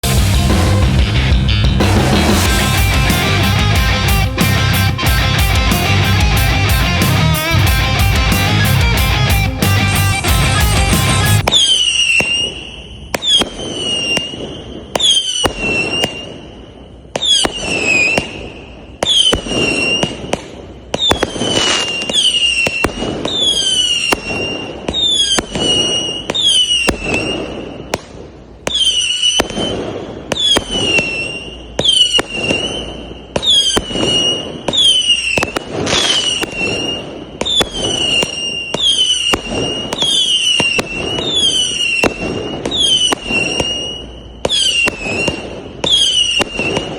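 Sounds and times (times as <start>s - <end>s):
fireworks cracking: 0.0s - 46.9s
falling firework whistle: 11.3s - 46.9s.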